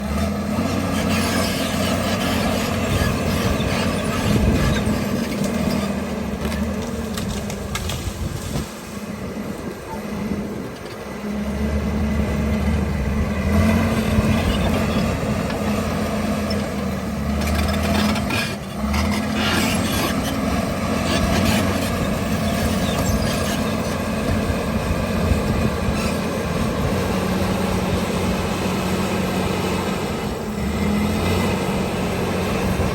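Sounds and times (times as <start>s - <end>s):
bulldozer diesel engine running: 0.0s - 32.9s.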